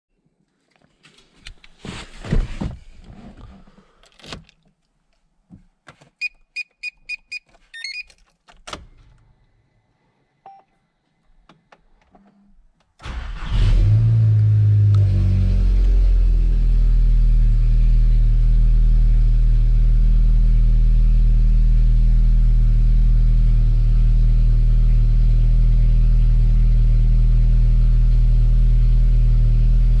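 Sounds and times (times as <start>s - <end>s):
car engine starting and idling: 13.0s - 30.0s.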